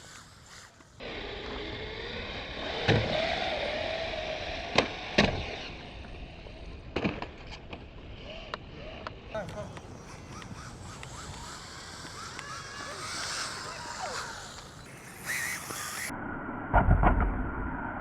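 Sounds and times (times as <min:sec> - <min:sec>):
rc car motor whine: 0:00.0 - 0:16.1
tyre noise: 0:09.3 - 0:16.1.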